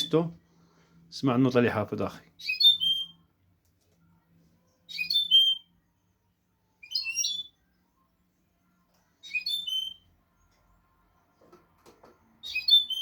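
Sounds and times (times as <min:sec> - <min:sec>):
finch singing twittering phrase: 0:02.4 - 0:03.2.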